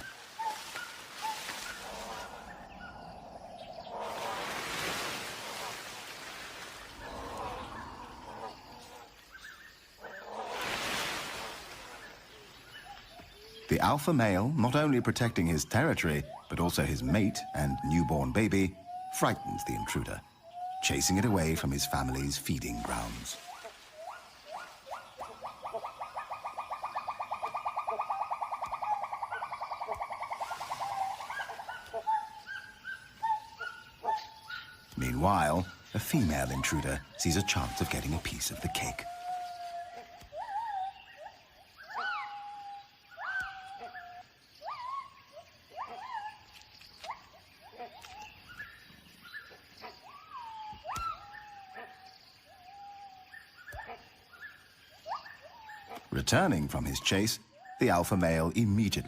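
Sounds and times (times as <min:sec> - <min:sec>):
gibbons whooping: 0:35.2 - 0:45.0.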